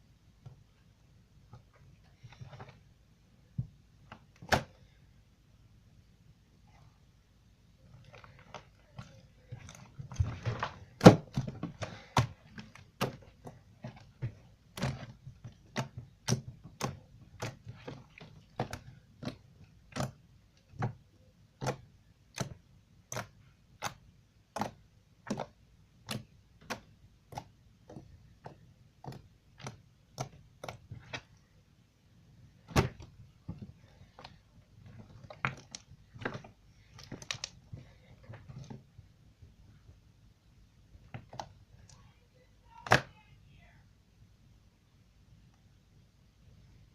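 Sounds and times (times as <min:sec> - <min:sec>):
slime squishing: 0:06.6 - 0:43.4.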